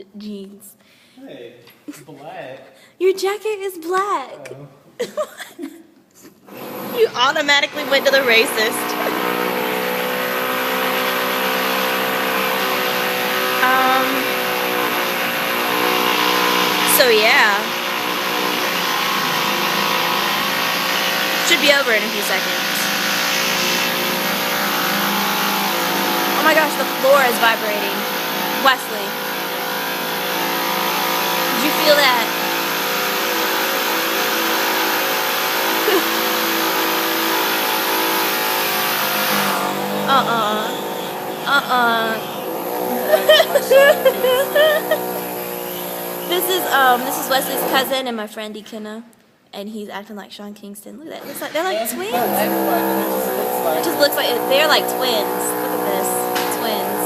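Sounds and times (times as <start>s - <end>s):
construction drilling drone: 6.5s - 48.1s, 51.2s - 57.0s.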